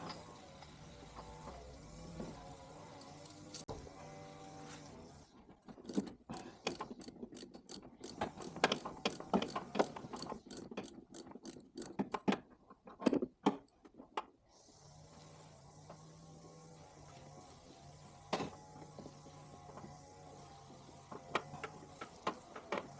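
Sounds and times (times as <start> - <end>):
mechanical ratcheting clicks: 5.9 - 12.2.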